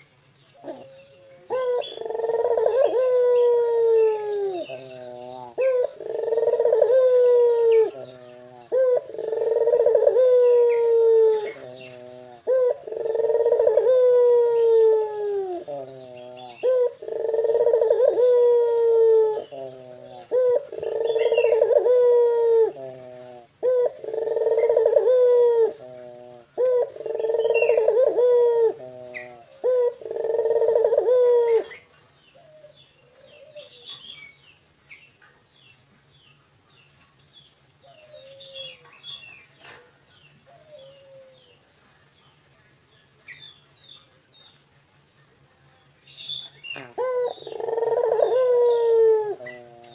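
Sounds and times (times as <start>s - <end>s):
dove cooing: 0.6s - 34.1s, 37.8s - 39.9s, 40.5s - 41.6s, 46.3s - 49.9s
faint bird chirps: 26.2s - 49.9s.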